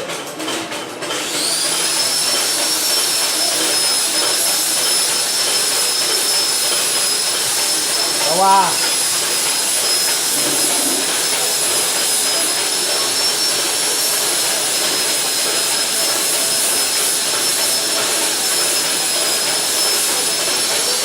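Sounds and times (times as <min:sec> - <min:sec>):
testing machine hissing: 0:01.4 - 0:21.0
thin high whines: 0:02.0 - 0:21.0.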